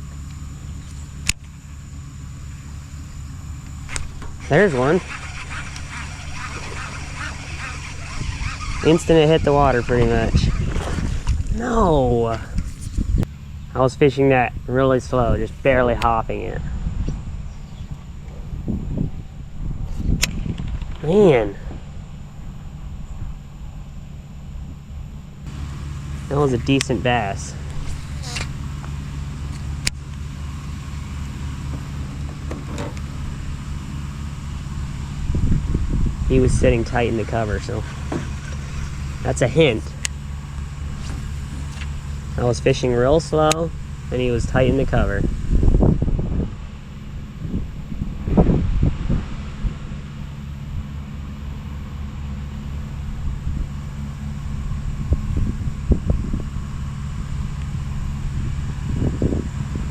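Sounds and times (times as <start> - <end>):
electric trolling motor humming: 0.0 - 16.5, 22.1 - 48.4
sharp click: 0.8 - 1.5.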